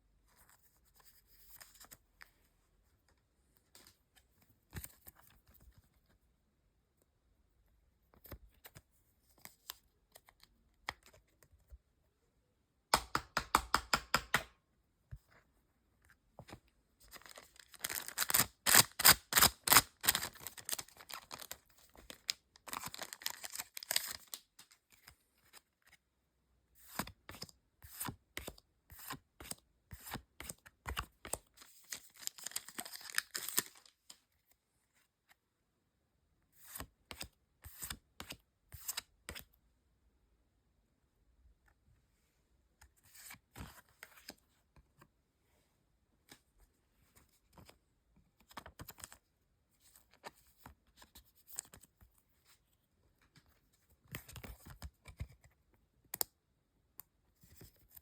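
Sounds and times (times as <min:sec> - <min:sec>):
foil wrappers tearing and crinkling: 0:17.6 - 0:21.6.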